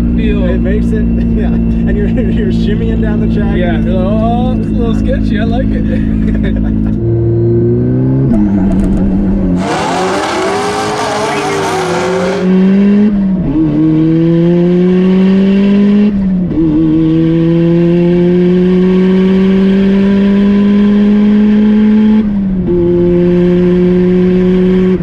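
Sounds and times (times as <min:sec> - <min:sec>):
car engine at full throttle: 0:07.8 - 0:25.0.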